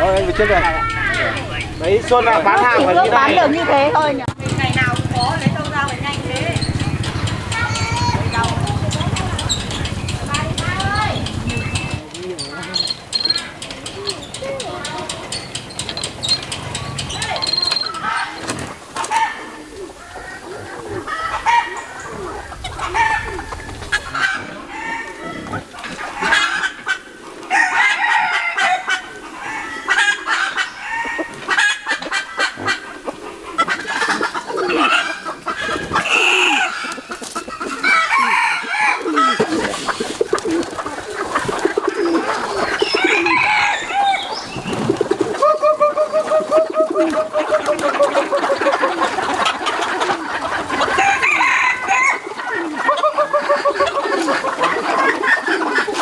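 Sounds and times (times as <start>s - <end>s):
rooster crowing: 0.0s - 4.1s, 19.1s - 31.9s, 34.7s - 39.7s, 42.4s - 44.4s, 50.6s - 53.9s
chickens clucking: 0.0s - 56.0s.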